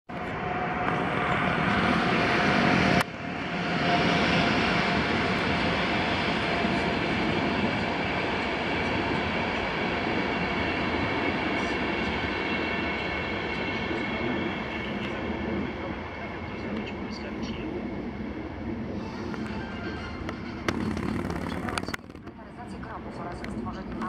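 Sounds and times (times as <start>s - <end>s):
train wheels rumbling on rails: 19.3s - 24.0s.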